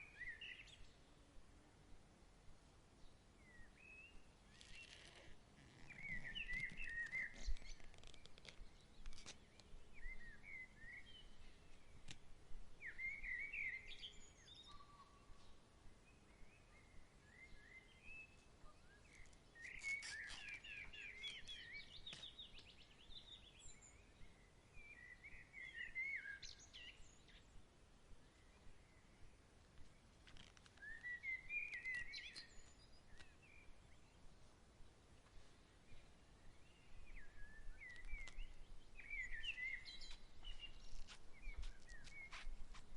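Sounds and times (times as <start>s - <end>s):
faint outdoor background: 0.0s - 42.9s
birds chirping and calling: 19.1s - 22.4s.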